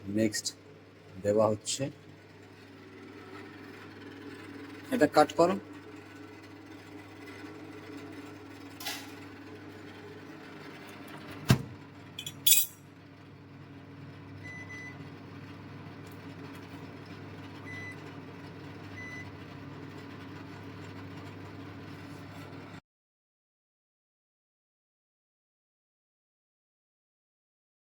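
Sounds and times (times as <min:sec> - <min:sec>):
kitchenware clinking: 0:12.2 - 0:12.8.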